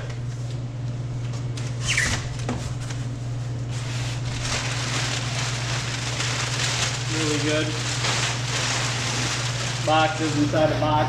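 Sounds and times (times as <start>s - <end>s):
steady low hum: 0.0s - 11.0s
short squeak: 1.8s - 2.3s
packing material rustling: 3.7s - 10.8s.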